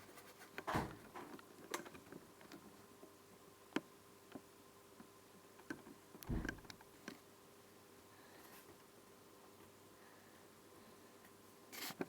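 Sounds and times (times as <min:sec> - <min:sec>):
light clicks and knocks: 0:05.6 - 0:06.8
deeper thump: 0:06.3 - 0:06.7.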